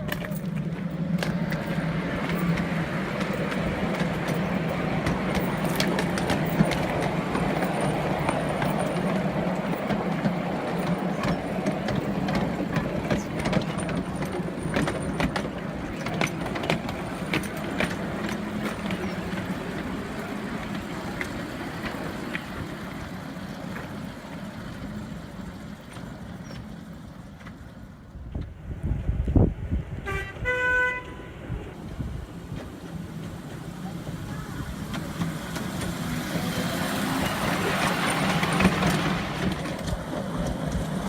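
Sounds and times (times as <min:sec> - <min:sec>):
sharp track clicks: 0:00.0 - 0:24.2, 0:34.8 - 0:41.0
miniature train engine hum: 0:00.0 - 0:41.0.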